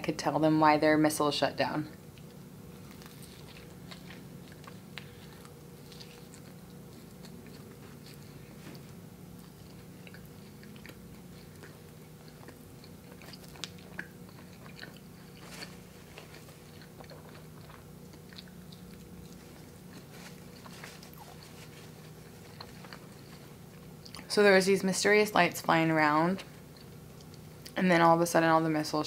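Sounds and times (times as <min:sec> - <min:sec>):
steady low hum: 0:00.0 - 0:29.0
wet chewing mouth clicks: 0:09.4 - 0:21.7, 0:26.7 - 0:27.8.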